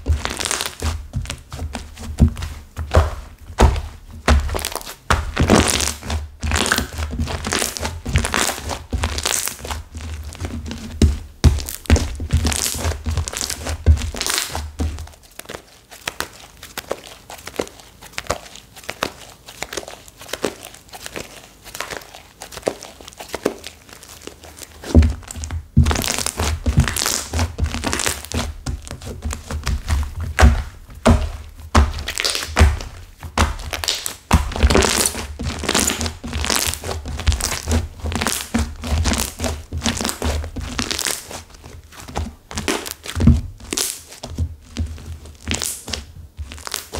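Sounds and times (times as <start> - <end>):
hard slime crackling and crunching: 0.0 - 46.9
soft thuds: 0.9 - 5.7.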